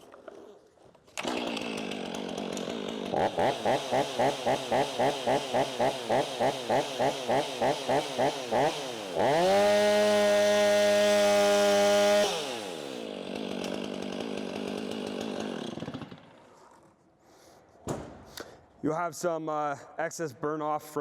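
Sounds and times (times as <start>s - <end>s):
chainsaw engine revving: 1.2s - 16.6s.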